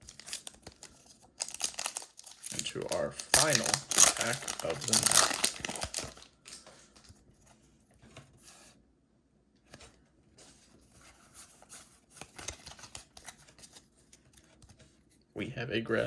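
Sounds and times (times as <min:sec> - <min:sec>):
trading cards rustling: 0:00.0 - 0:07.4, 0:11.0 - 0:14.7.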